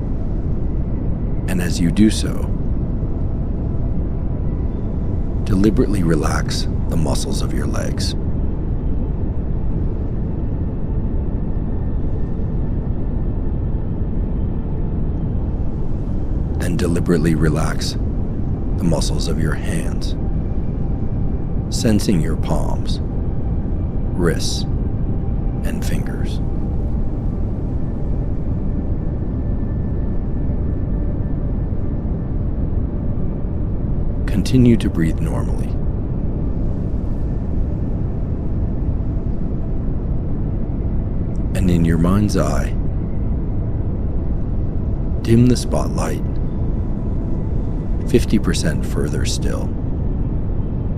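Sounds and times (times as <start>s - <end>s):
pink noise: 0.0s - 2.5s, 5.0s - 8.2s, 13.9s - 27.2s, 45.0s - 49.8s
pink noise hiss: 0.0s - 4.0s, 4.7s - 8.3s, 9.0s - 31.1s, 36.4s - 43.4s, 44.5s - 46.4s.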